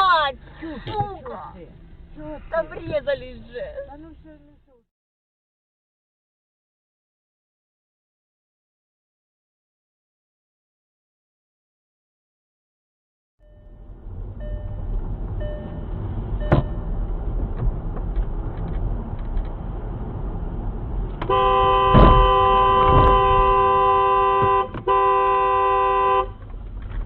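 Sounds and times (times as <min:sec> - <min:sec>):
car road and engine noise: 0:00.0 - 0:04.8, 0:13.4 - 0:27.0
loud thumps: 0:16.4 - 0:19.1, 0:21.1 - 0:25.0
car horn held: 0:21.3 - 0:26.4.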